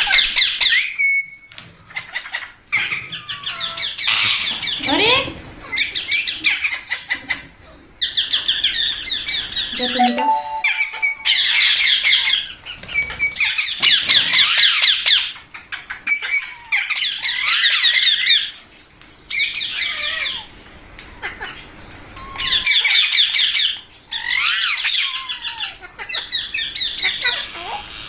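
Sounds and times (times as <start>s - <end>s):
parakeets squawking: 2.0s - 5.3s.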